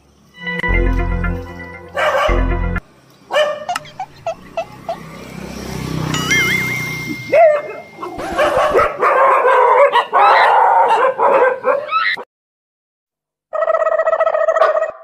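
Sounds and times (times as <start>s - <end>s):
steady held tone: 0.4s - 2.8s, 6.2s - 8.8s
dogs barking and snarling: 1.9s - 2.5s, 3.3s - 5.4s, 7.3s - 12.2s, 14.2s - 15.0s
short warbling tone: 6.2s - 8.8s.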